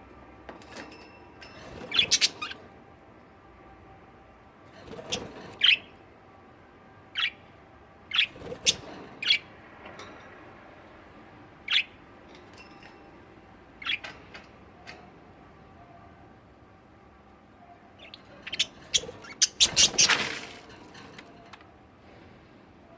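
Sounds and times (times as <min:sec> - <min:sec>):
budgerigars chirping and squawking: 0:01.8 - 0:02.6, 0:05.0 - 0:05.9, 0:08.1 - 0:09.5, 0:11.6 - 0:12.0, 0:13.8 - 0:14.2, 0:18.0 - 0:20.6.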